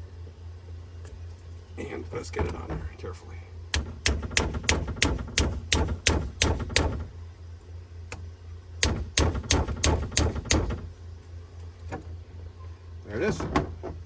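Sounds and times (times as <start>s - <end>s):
sharp taps on plastic impeller: 3.7s - 7.1s, 8.8s - 10.9s.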